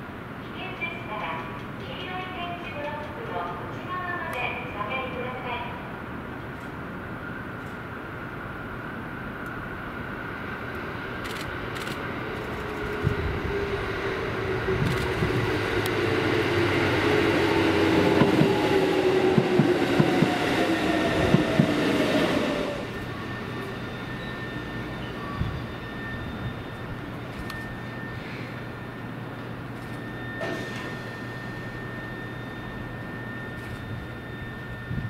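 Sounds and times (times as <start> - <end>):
electric train motor whine: 11.0 - 35.0.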